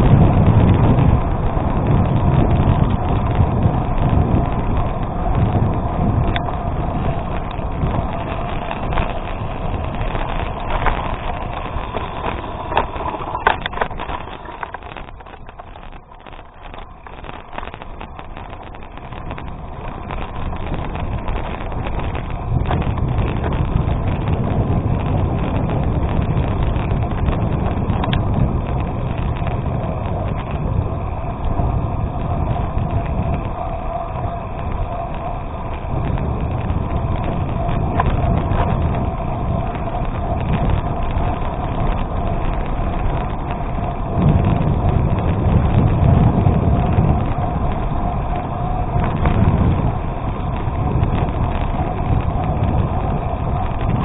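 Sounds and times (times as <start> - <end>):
bike tyres rolling on gravel: 0.0 - 54.0
wind buffeting microphone: 0.0 - 54.0
clicks and rattles: 6.3 - 24.2.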